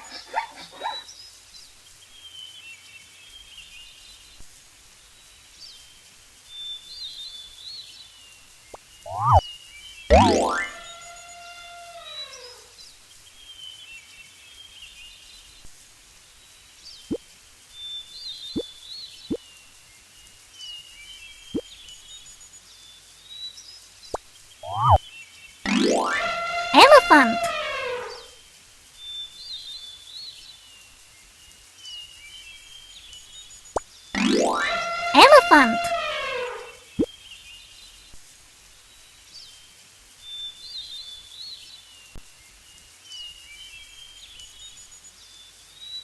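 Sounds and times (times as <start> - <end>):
soft outdoor ambience: 0.0 - 46.0
faint bird chirps: 5.1 - 13.8, 16.3 - 28.4
birds chirping: 9.0 - 9.4, 10.1 - 11.2, 24.6 - 25.1
falling pitched tone: 9.1 - 9.4, 10.1 - 11.0, 24.6 - 25.0, 25.7 - 28.3, 34.2 - 36.7
short rising plops: 9.1 - 9.4.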